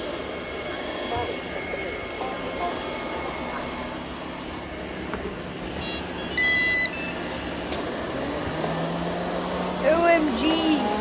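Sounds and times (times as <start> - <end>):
robot vacuums whirring: 0.0 - 11.0
short electronic beep: 5.8 - 7.6.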